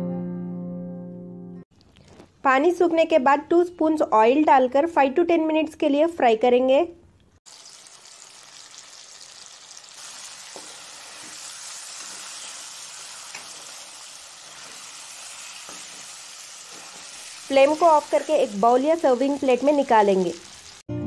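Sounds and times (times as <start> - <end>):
chicken sizzling in oil: 7.5 - 20.9
spoon stirring: 10.3 - 17.5.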